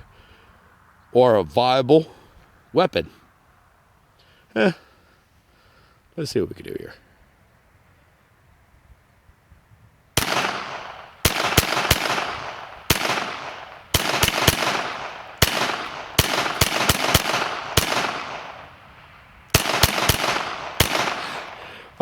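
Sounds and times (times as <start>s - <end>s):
pistol gunshots with echo: 10.2s - 22.0s.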